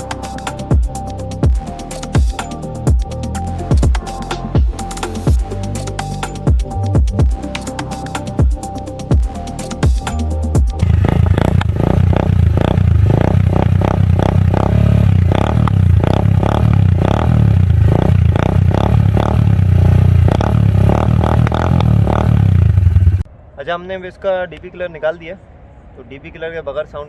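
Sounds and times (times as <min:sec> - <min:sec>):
music: 0:00.0 - 0:10.8
motorcycle engine running: 0:10.8 - 0:23.3.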